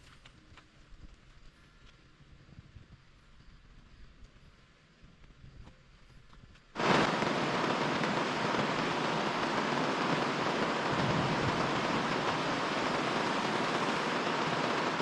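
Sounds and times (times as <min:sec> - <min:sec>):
heavy rain hissing: 0:06.8 - 0:15.0.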